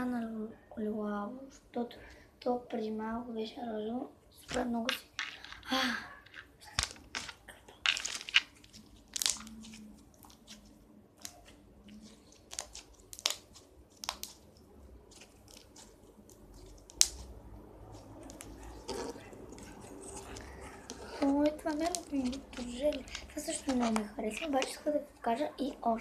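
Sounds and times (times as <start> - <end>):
slime squeezed with sticky pops: 6.4 - 24.8.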